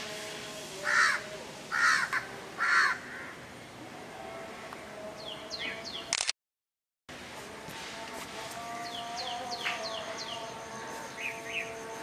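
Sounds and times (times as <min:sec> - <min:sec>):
harsh bird calls: 0:00.8 - 0:03.4.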